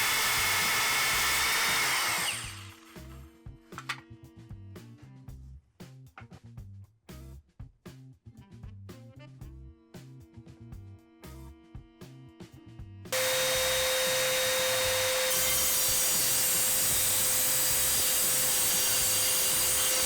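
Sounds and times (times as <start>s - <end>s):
circular saw cutting: 0.0s - 3.2s, 13.2s - 20.0s
saw motor whine: 0.0s - 3.2s, 13.2s - 20.0s.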